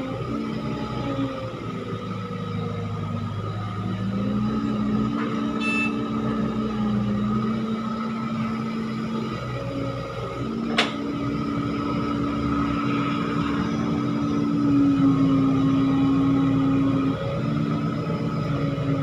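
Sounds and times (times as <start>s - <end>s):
diesel earthmoving machinery running: 0.0s - 19.0s.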